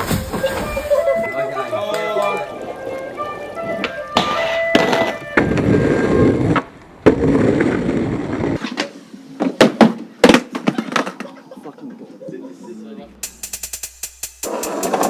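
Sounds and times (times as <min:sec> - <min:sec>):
skateboard wheels rolling: 0:00.0 - 0:11.6, 0:14.5 - 0:15.0
skateboard pops and slaps: 0:03.8 - 0:05.7, 0:06.5 - 0:11.4.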